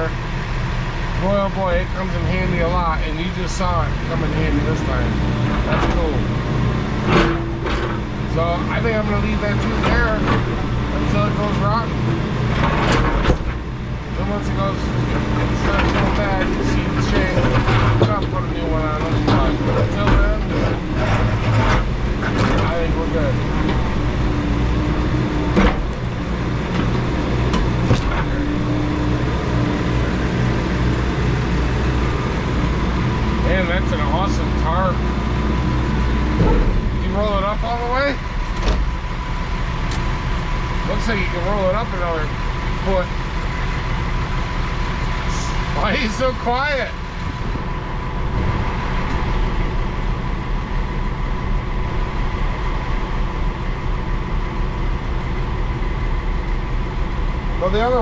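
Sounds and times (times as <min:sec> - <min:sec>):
heavy equipment engine running: 0:00.0 - 0:58.0
sharp knocks: 0:25.5 - 0:26.1.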